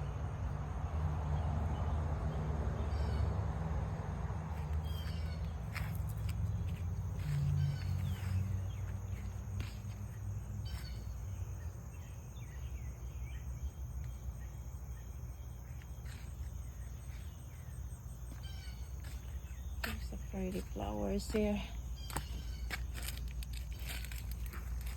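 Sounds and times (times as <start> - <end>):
faint bird chirps: 4.8 - 6.0, 7.2 - 24.4
insect trill: 4.8 - 24.9.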